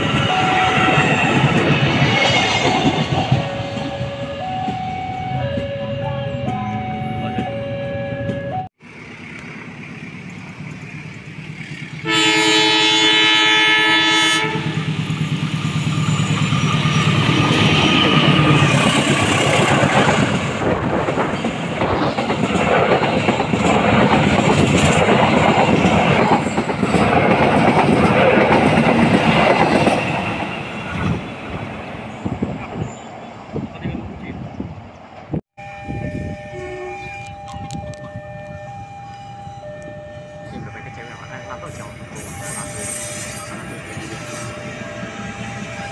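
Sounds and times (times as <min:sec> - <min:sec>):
train horn: 0:00.2 - 0:01.2, 0:12.0 - 0:15.0, 0:35.8 - 0:37.4
train wheels clattering on rails: 0:14.7 - 0:32.8.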